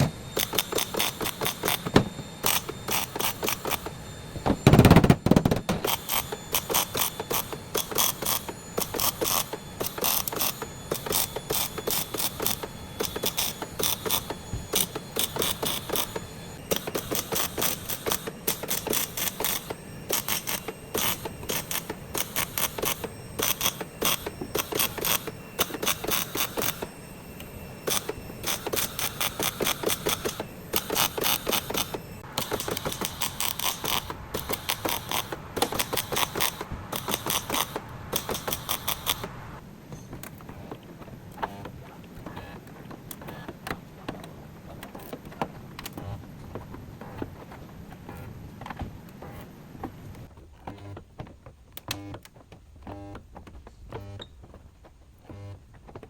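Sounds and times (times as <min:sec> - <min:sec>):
hand ratchet clicking: 0:00.4 - 0:03.9, 0:04.7 - 0:26.9, 0:27.9 - 0:39.3.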